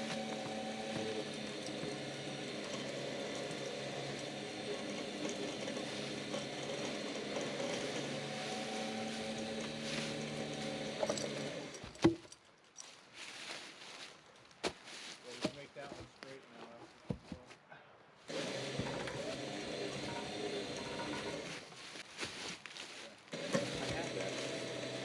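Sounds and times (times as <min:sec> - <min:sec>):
motor running: 0:00.0 - 0:11.9, 0:18.3 - 0:21.6, 0:23.3 - 0:25.0.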